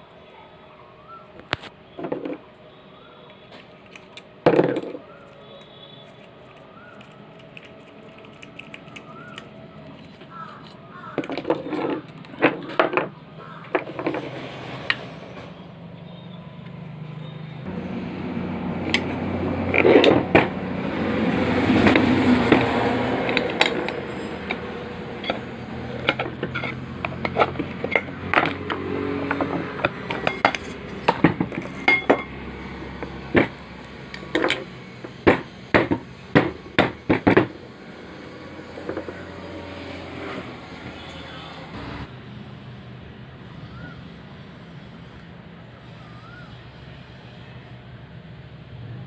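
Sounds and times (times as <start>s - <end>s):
scraping and rattling: 5.6s - 15.6s, 18.8s - 37.6s, 38.5s - 41.2s
metal clicks and clanks: 21.8s - 37.5s.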